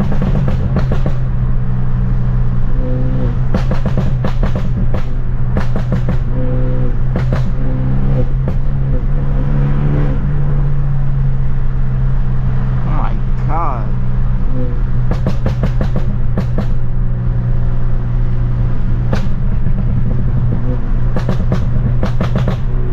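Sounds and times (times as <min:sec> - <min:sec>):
exhaust pops and crackles: 0:00.0 - 0:01.6, 0:02.8 - 0:09.2, 0:14.6 - 0:22.9
car engine droning: 0:00.0 - 0:22.9.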